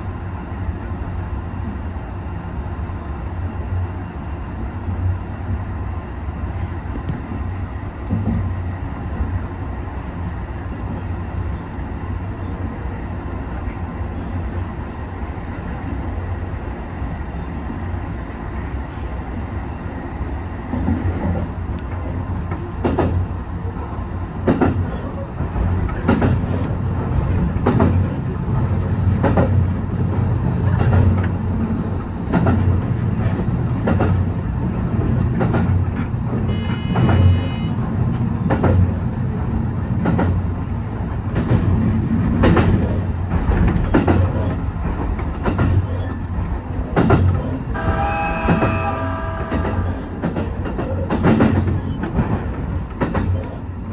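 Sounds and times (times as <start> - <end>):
train rumbling on rails: 0.0 - 53.9
rail-joint clicks: 20.7 - 53.6.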